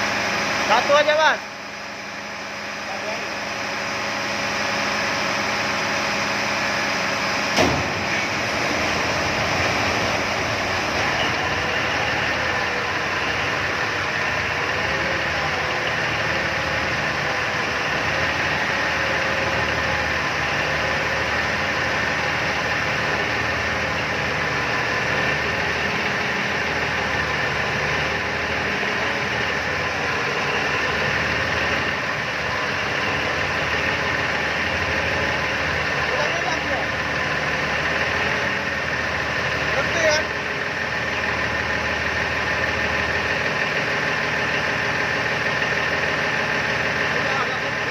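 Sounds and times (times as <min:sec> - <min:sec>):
marine diesel engine running: 0:00.0 - 0:47.9
sharp knock: 0:07.6 - 0:08.0.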